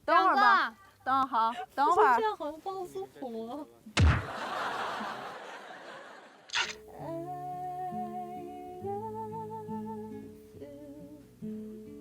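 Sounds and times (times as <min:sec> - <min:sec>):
short swish: 0:06.5 - 0:06.8.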